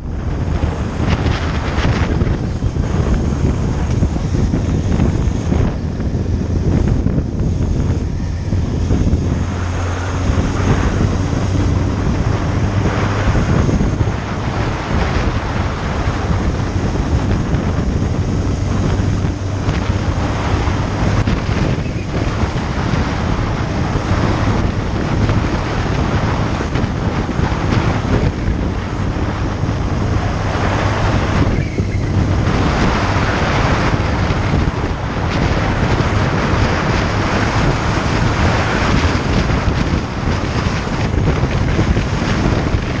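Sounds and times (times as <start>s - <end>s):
motorcycle engine hum: 0.0s - 43.0s
wind buffeting microphone: 0.0s - 43.0s.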